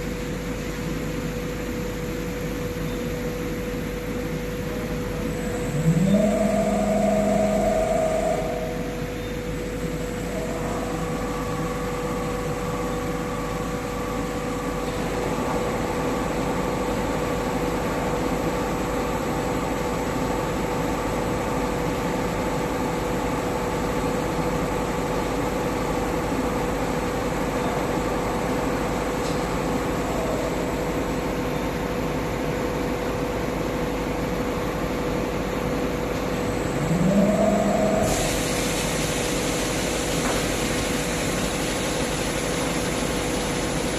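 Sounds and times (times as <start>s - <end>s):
short whine bending in pitch: 3.2s - 16.5s, 36.2s - 43.9s
grinding machine hum: 3.5s - 32.7s, 34.5s - 43.9s.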